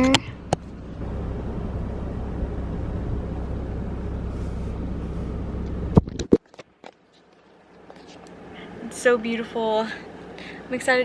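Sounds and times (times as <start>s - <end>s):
pickup truck engine rumbling: 0.0s - 10.7s.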